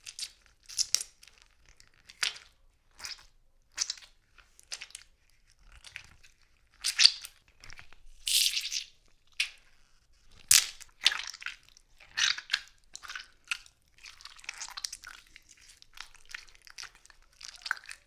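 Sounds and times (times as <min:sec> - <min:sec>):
tomato squelching and crunching: 0:00.0 - 0:18.0.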